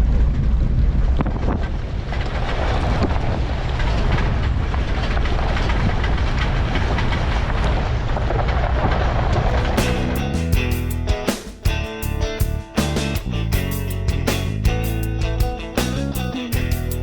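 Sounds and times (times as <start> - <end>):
vehicle rumbling on rough track: 0.0 - 11.1.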